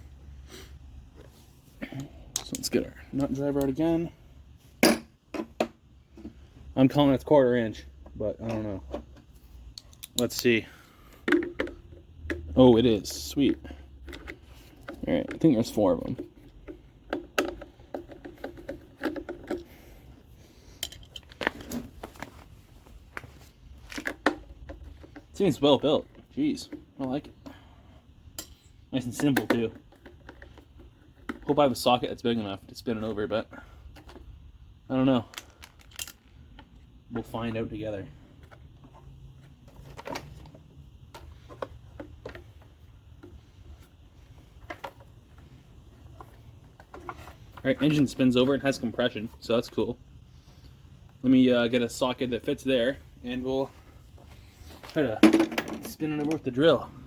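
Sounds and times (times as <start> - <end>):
metallic tool clicks and taps: 2.3 - 2.6, 9.8 - 10.5.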